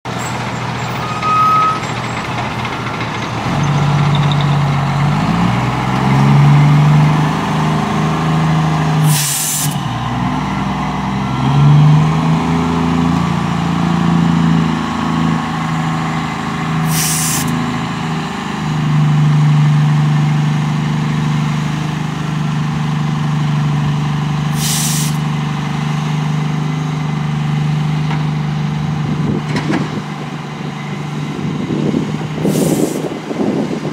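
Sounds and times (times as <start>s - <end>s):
heavy diesel engines working: 0.0s - 33.9s
air release hisses: 9.0s - 9.8s, 16.8s - 17.5s, 24.6s - 25.2s, 32.5s - 33.0s.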